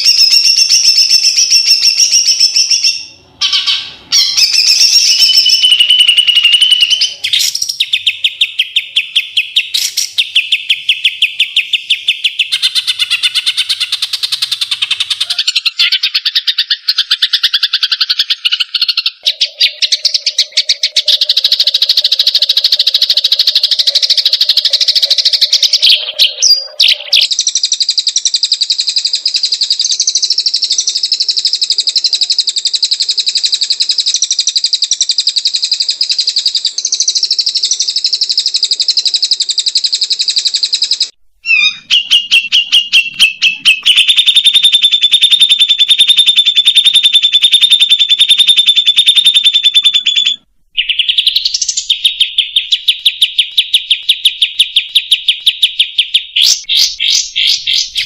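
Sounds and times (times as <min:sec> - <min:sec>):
songbird buzzy trills: 0:00.0 - 0:58.0.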